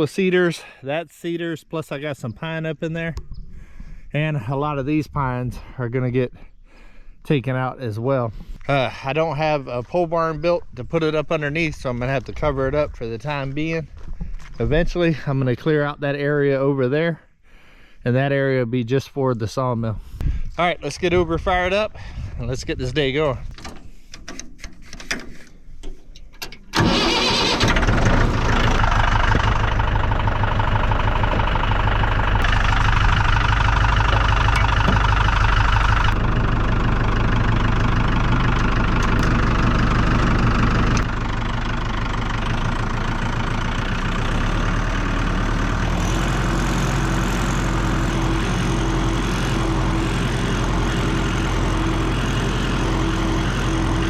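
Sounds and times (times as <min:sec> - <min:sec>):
tractor engine starting and running: 0:22.6 - 0:54.0.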